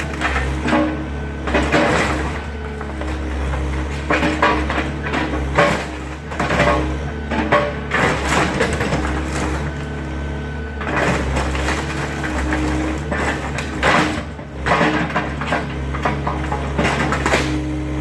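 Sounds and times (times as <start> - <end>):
debris crashing and crunching: 0.0 - 18.0
excavator engine running: 0.0 - 18.0.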